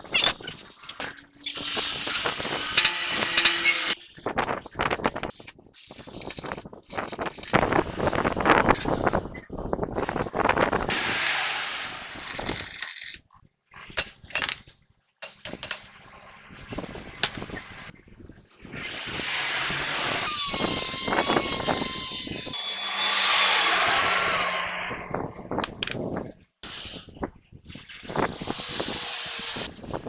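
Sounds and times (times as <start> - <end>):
power tool whining: 0.9 - 4.0, 18.8 - 25.2, 28.4 - 29.8
metal clinks: 14.0 - 14.6, 15.2 - 15.9.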